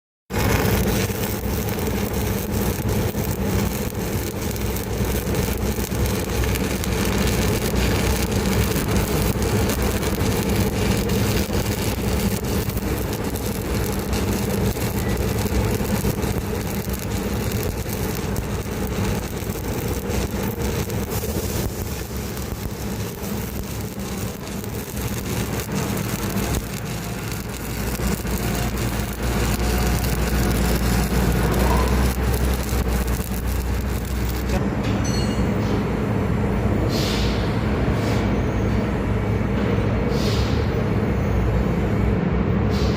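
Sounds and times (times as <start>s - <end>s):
engine running with low hum: 0.4s - 34.6s.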